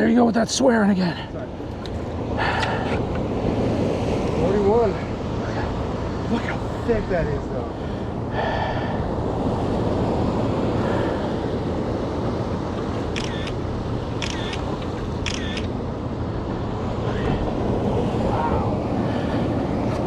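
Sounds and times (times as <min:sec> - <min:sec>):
wind and water rushing: 0:00.0 - 0:20.0
phone camera shutter: 0:13.1 - 0:13.6, 0:14.2 - 0:15.7.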